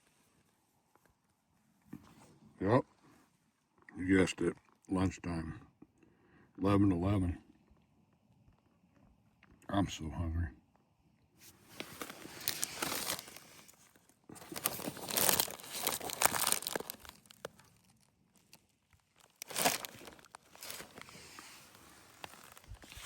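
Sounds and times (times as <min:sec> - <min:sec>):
food wrapper crinkling and tearing: 0:11.7 - 0:23.0.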